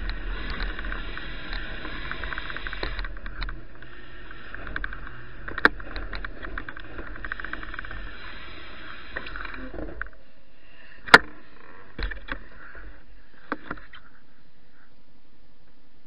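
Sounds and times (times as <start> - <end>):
bicycle freewheel ticking: 0.0 - 8.6.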